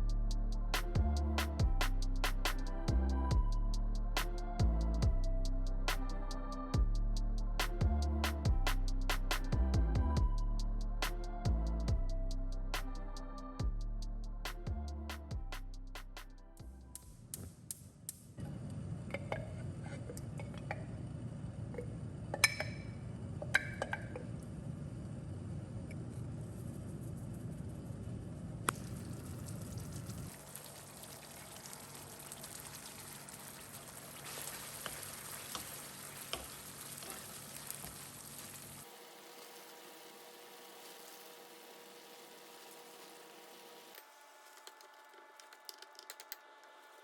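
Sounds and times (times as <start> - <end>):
food sizzling in a pan: 30.2 - 44.5.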